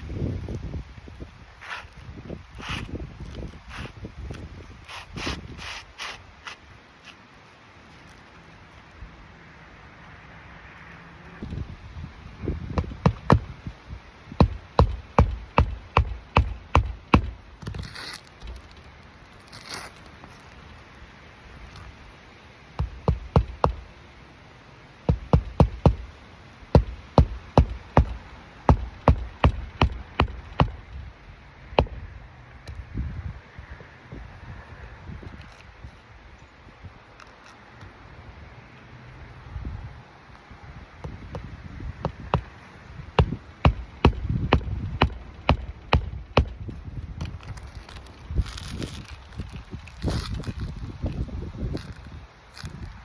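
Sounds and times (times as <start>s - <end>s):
hammer driving nails: 14.4s - 17.8s, 22.8s - 23.8s, 25.1s - 26.1s, 26.8s - 30.8s, 43.2s - 46.6s.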